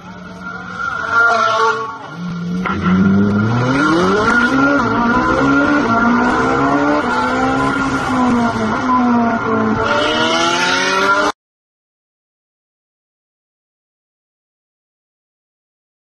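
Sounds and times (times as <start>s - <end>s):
sports car engine accelerating: 0.0s - 11.4s.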